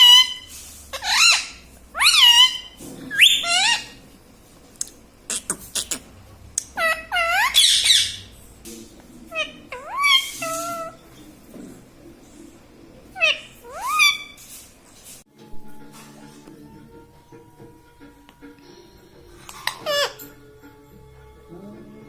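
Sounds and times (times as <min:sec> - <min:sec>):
parrot calling: 0:00.0 - 0:04.1, 0:05.2 - 0:08.4, 0:09.3 - 0:11.2, 0:13.1 - 0:14.4, 0:19.5 - 0:20.4.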